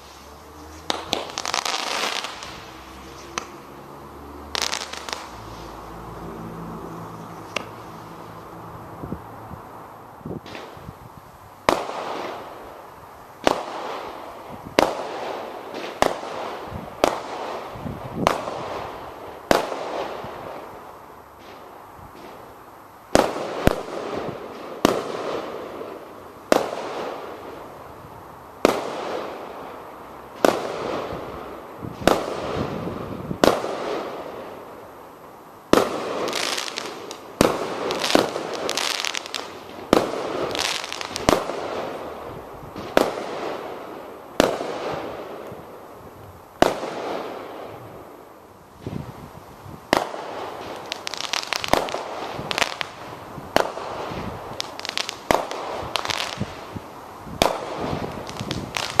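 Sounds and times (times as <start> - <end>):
quick firework pops: 0.8 - 3.6, 7.4 - 7.8.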